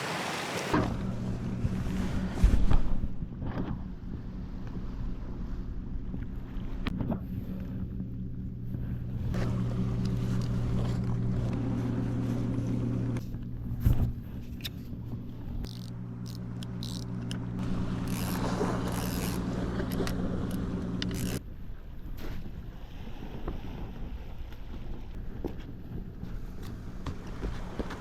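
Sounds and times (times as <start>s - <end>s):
engine running steadily: 0.7s - 21.4s.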